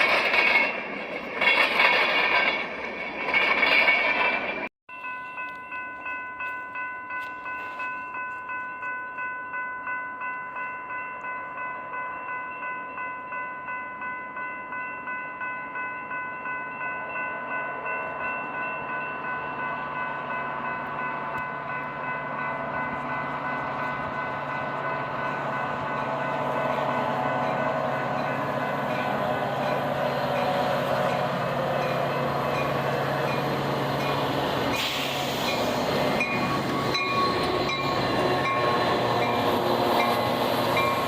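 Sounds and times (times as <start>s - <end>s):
train rumble: 0.0s - 4.7s, 16.0s - 41.0s
crossing bell ringing: 0.0s - 41.0s.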